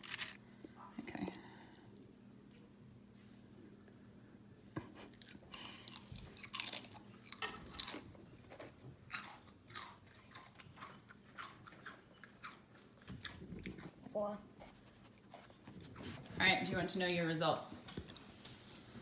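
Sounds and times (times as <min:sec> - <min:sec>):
chewing crisp potato chip: 0:00.0 - 0:02.7, 0:05.1 - 0:14.1.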